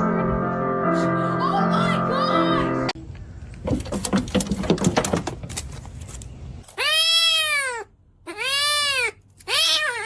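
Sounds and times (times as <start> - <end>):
clicks and knocks: 3.6 - 5.8
cat meowing: 6.7 - 10.0.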